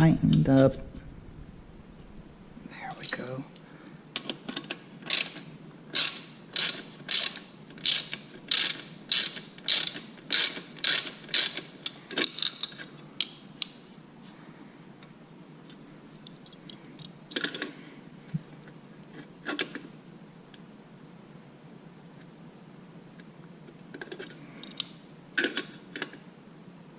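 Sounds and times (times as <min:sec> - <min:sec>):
ratchet wrench ratcheting: 0:05.1 - 0:12.7.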